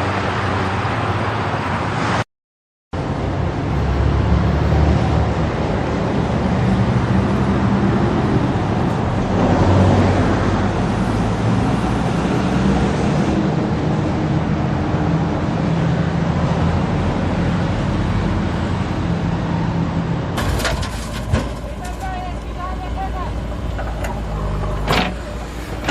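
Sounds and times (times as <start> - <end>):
heavy vehicle engine running: 13.4 - 25.9.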